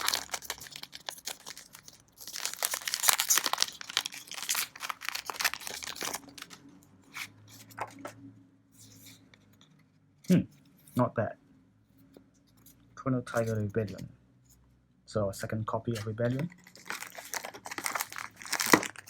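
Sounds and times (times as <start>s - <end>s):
foil pack crinkling and tearing: 0.0s - 6.6s, 16.4s - 19.0s.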